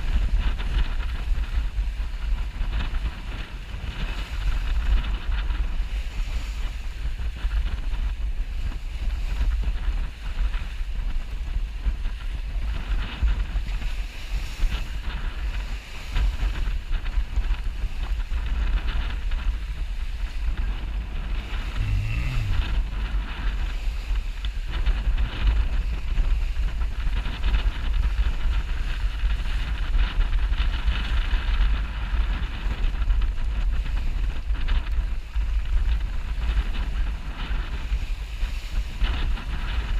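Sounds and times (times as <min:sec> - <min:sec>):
wind buffeting microphone: 0:00.0 - 0:39.9
water rushing past hull: 0:00.1 - 0:39.9
low hum: 0:16.9 - 0:25.7.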